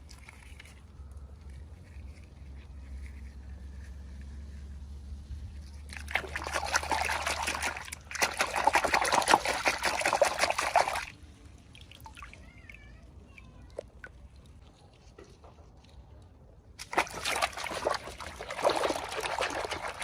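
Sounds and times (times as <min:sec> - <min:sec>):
water trickling: 0:05.8 - 0:12.8, 0:16.8 - 0:20.0.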